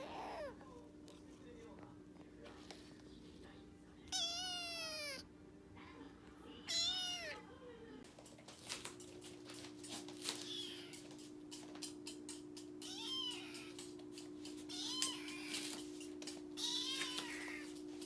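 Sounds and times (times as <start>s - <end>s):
kitten meowing: 4.1s - 5.2s, 6.7s - 7.4s, 16.6s - 17.6s.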